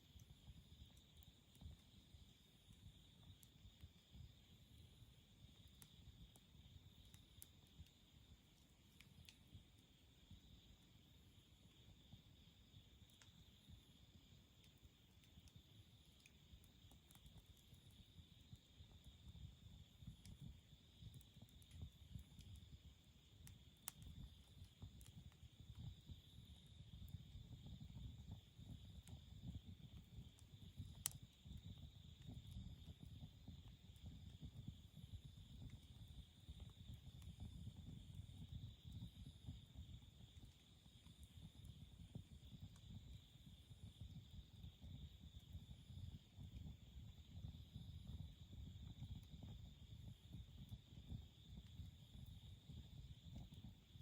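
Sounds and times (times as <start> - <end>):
burning wood crackling and popping: 0.0 - 10.7, 12.0 - 43.1
low fluttering rumble of flames: 0.0 - 54.0.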